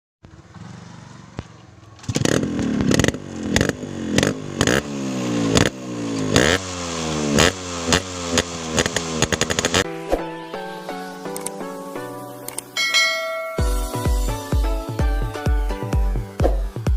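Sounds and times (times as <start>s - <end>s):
exhaust cracks and crackles: 0.2s - 9.8s
motorcycle engine revving: 0.2s - 9.9s.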